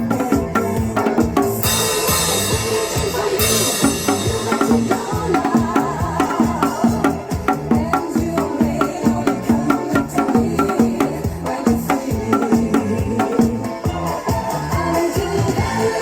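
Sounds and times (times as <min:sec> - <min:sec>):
disco backing music: 0:00.0 - 0:16.0
hourglass drum struck: 0:01.6 - 0:07.0.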